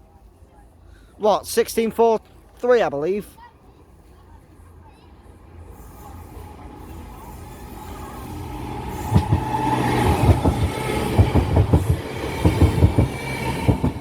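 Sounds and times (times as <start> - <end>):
electric train running: 5.5 - 14.0.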